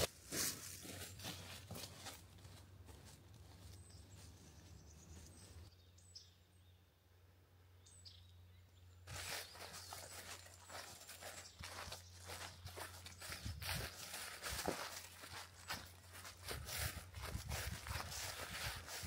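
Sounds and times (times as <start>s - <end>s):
footsteps on a path: 0.0s - 5.7s, 9.1s - 19.0s
faint outdoor ambience: 0.0s - 19.0s.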